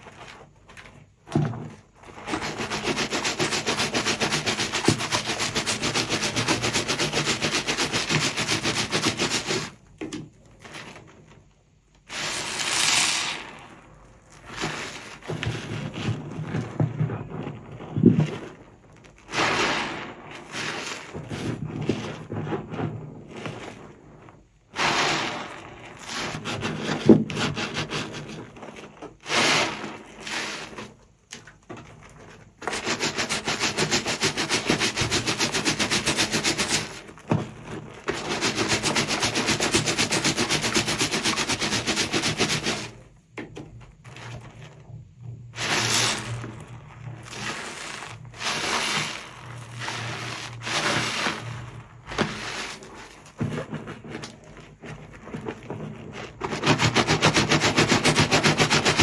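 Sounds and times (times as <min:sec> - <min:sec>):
sponge squishing in foam: 0:00.0 - 0:11.4, 0:12.0 - 0:31.1, 0:32.0 - 0:43.2, 0:44.0 - 0:59.0
fast scrubbing strokes: 0:02.2 - 0:09.8, 0:12.1 - 0:16.1, 0:38.2 - 0:43.0, 0:45.6 - 0:59.0.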